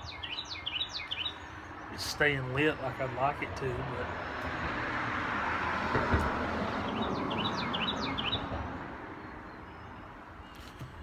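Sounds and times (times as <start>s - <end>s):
small bird chirping: 0.0s - 1.6s
steady outdoor rush: 0.0s - 11.0s.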